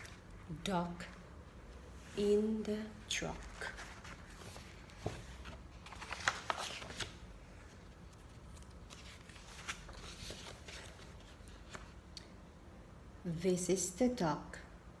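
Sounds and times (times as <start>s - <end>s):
paper pages rustling: 0.0s - 0.4s, 3.1s - 12.0s.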